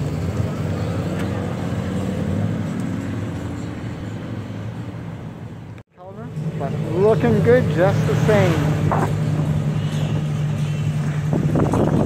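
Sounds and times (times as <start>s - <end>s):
car engine pulling away: 0.0s - 4.8s.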